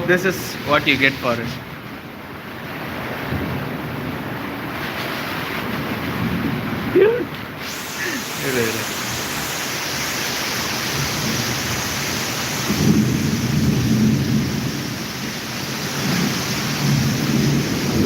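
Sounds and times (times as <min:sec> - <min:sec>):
rain hiss: 0:00.0 - 0:01.8, 0:04.6 - 0:18.0
thunder rumbling: 0:07.8 - 0:18.0.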